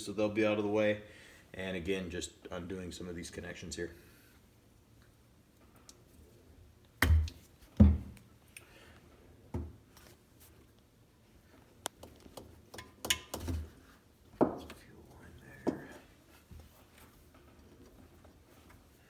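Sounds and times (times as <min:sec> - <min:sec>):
hand tools knocking and clicking: 0:11.9 - 0:13.7.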